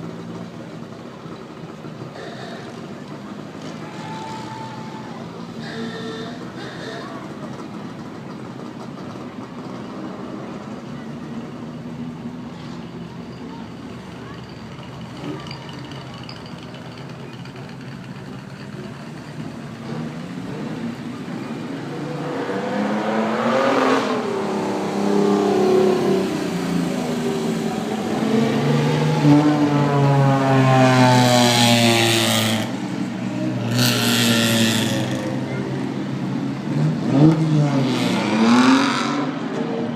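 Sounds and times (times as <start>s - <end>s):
car engine accelerating: 17.1s - 39.9s.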